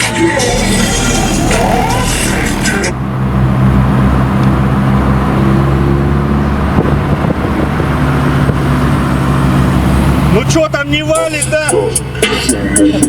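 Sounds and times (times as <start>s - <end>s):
subwoofer heavy bass: 0.0s - 3.4s.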